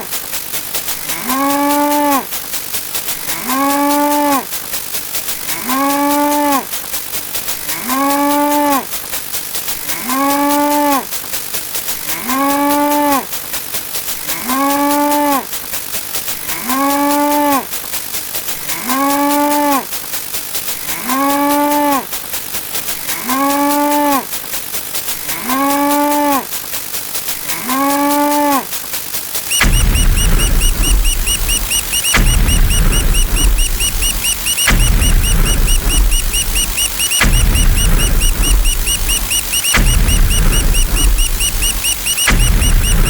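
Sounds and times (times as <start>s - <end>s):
faint fast ticking: 0.0s - 43.0s
cow mooing: 1.1s - 2.2s, 3.4s - 4.4s, 5.6s - 6.6s, 7.7s - 8.8s, 10.0s - 11.0s, 12.1s - 13.3s, 14.4s - 15.4s, 16.5s - 17.6s, 18.7s - 19.8s, 20.9s - 22.0s, 23.2s - 24.2s, 25.3s - 26.4s, 27.5s - 28.6s.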